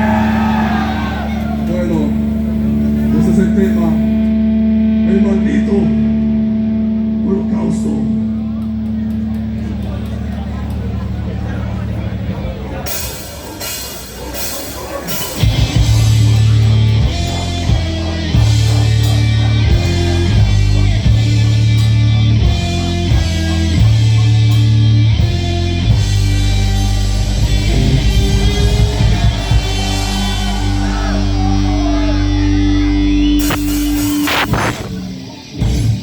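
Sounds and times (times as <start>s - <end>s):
live rock band playing: 12.8s - 36.0s.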